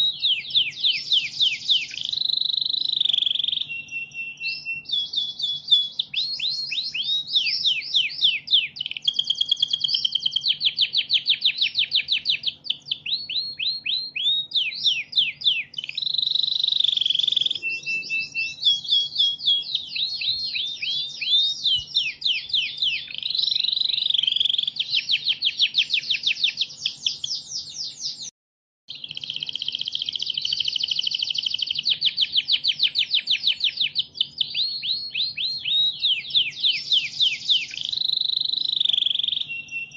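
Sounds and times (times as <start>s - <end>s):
canary singing trills: 0.0s - 28.3s, 28.9s - 39.9s.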